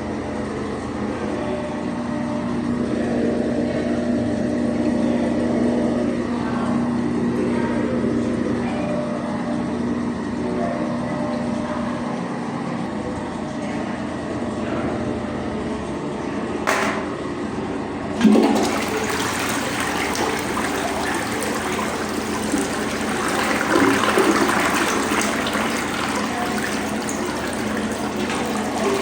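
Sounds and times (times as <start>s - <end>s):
rush of flushing water: 18.1s - 29.0s
water running: 18.2s - 29.0s.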